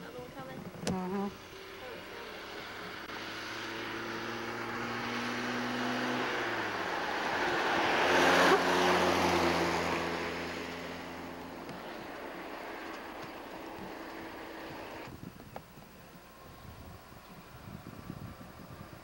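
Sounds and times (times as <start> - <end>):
racing car engine passing by: 1.1 - 15.1.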